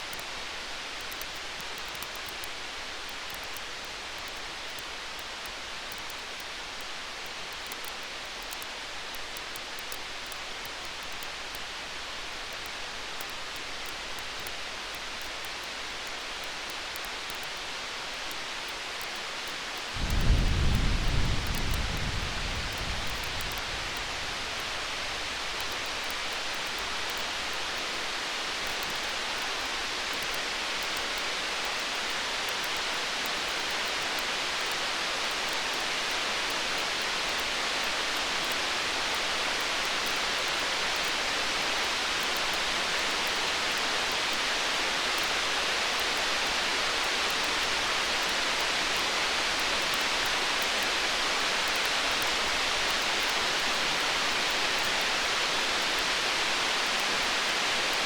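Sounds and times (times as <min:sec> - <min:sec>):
steady hiss: 0:00.0 - 0:58.0
campfire crackling: 0:18.3 - 0:30.9
distant thunder rumble: 0:20.0 - 0:25.4.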